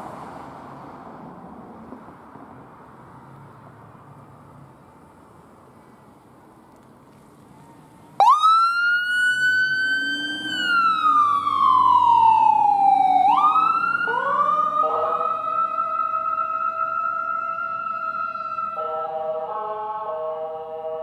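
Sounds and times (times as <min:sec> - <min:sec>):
emergency vehicle siren wailing: 0:08.2 - 0:21.0
lower siren tone: 0:08.2 - 0:21.0.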